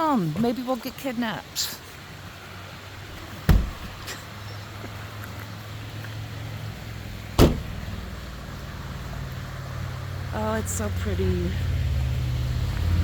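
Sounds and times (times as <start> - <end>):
car door slamming: 3.2 - 4.1, 7.4 - 7.8
car engine idling: 6.3 - 11.4.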